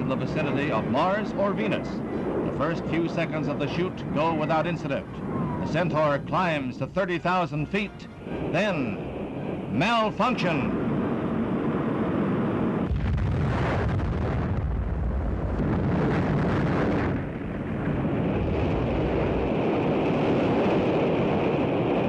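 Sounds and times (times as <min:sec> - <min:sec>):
deep explosion blast: 0:10.7 - 0:22.0.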